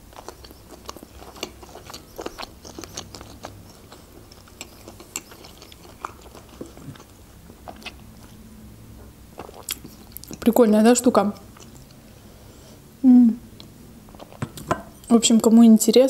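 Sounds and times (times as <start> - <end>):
person chewing noodles: 0.0 - 8.5, 9.3 - 10.5, 11.4 - 12.3, 13.6 - 14.5.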